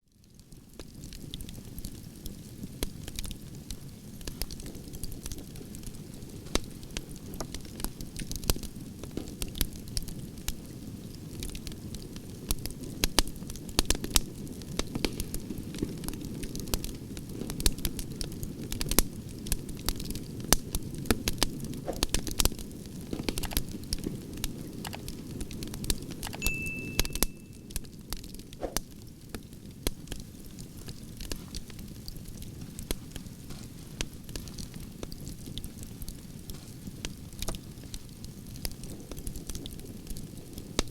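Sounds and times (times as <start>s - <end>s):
burning logs crackling and popping: 0.0s - 26.4s, 27.6s - 40.9s
low rush of flame: 0.3s - 26.1s.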